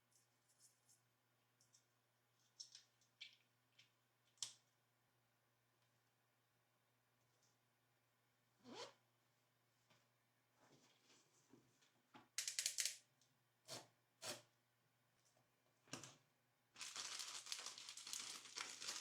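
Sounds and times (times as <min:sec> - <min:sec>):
packaging crinkling: 0:16.8 - 0:19.0.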